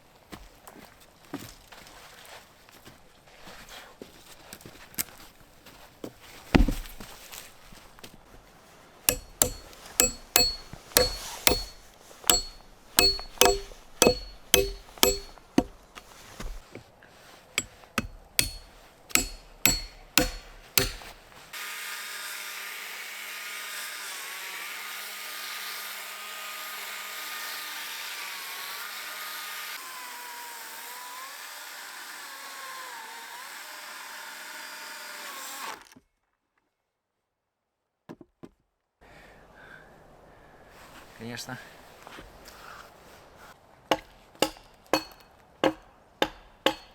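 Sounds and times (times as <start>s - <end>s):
tool striking wood: 9.1s - 15.8s, 17.6s - 21.2s, 43.9s - 46.9s.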